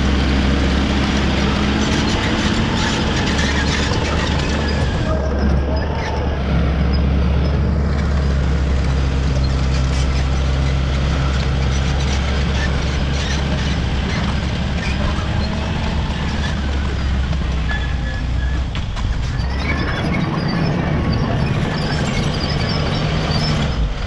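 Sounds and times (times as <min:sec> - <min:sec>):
bulldozer diesel engine drone: 0:00.0 - 0:24.0.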